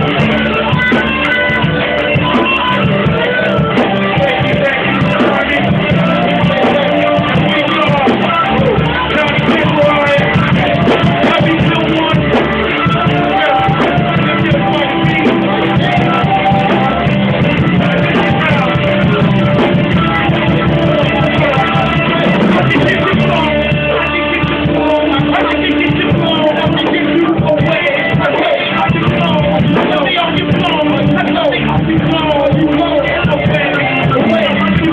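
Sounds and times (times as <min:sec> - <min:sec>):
live band guitar music: 0:00.0 - 0:34.9
person singing: 0:00.0 - 0:34.9.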